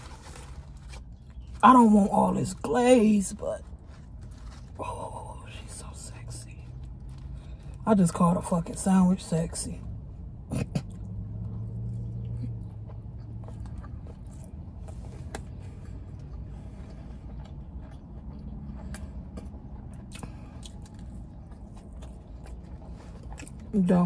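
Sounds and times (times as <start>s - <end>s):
wet chewing: 0.0s - 4.8s, 10.7s - 24.0s.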